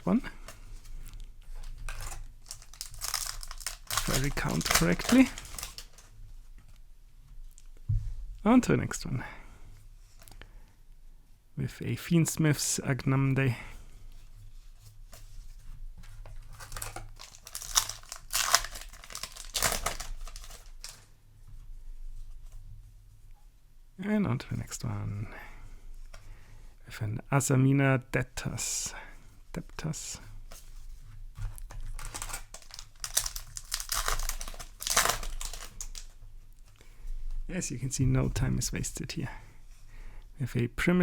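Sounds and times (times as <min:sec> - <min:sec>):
foil wrapper crinkling and tearing: 0:00.0 - 0:00.2, 0:01.8 - 0:06.1, 0:16.5 - 0:21.1, 0:31.6 - 0:36.2.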